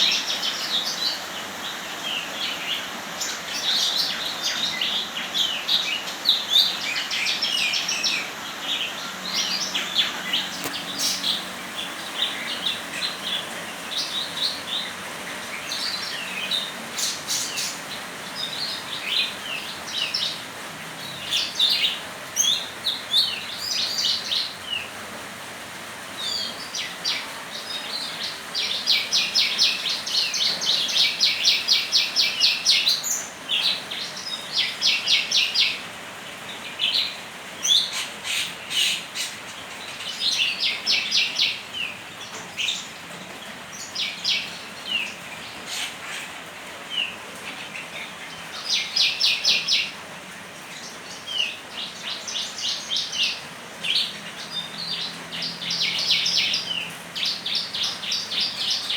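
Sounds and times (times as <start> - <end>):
steady background hiss: 0.0 - 58.9
songbird trilling and chirping: 50.8 - 58.9.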